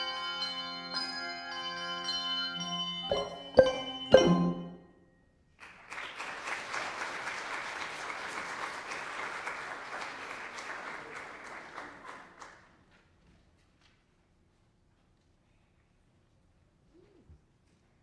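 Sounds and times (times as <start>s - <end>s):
bell chord ringing: 0.0s - 4.9s
audience applauding: 5.6s - 12.6s.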